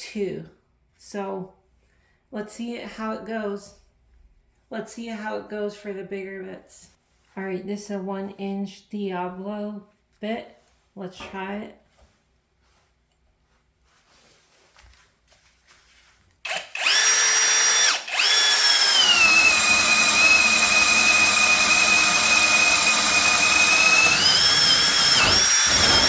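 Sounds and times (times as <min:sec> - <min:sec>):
cordless drill motor whine: 0:16.5 - 0:26.0.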